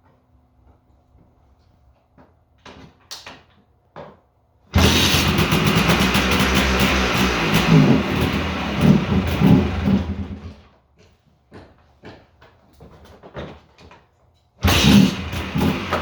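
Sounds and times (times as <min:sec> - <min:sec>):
two-stroke engine throttle blips: 0:04.8 - 0:10.6, 0:14.6 - 0:16.0.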